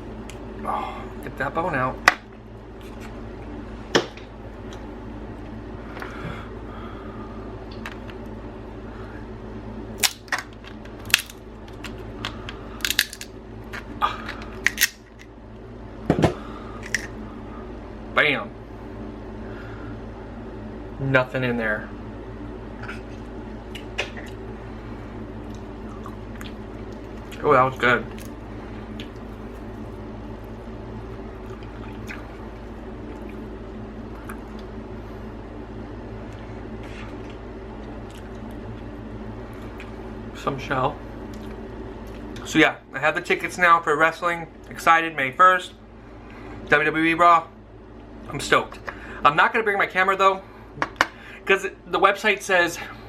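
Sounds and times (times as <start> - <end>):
steady low hum: 0.0 - 53.0
crab shell cracking: 10.0 - 15.3.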